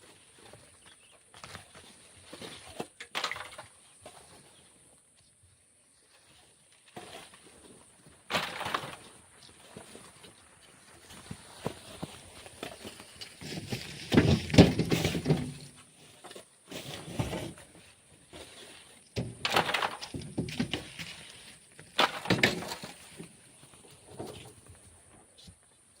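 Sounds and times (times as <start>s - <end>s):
tool scraping sand and gravel: 11.4s - 23.2s.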